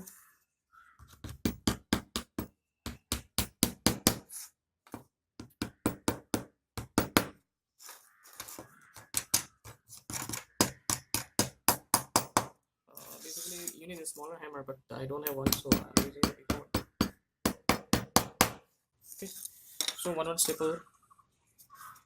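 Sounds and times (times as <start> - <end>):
hammer tapping on staples: 1.3 - 4.2, 10.6 - 12.5, 15.5 - 18.6.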